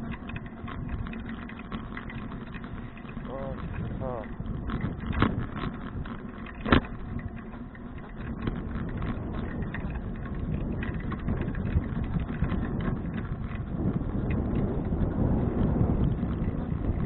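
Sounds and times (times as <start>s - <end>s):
bicycle riding rumble: 0.0s - 17.0s
small clicks and rattles: 0.0s - 17.0s.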